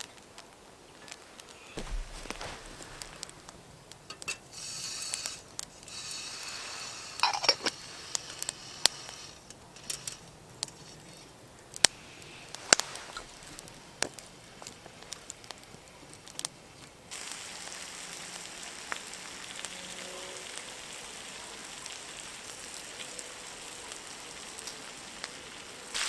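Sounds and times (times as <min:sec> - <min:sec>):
brief hissing: 0:01.6 - 0:03.6.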